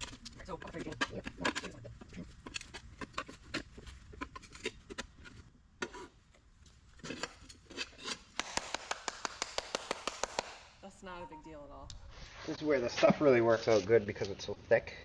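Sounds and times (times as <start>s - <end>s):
rubber and metal scraping: 0.0s - 8.8s.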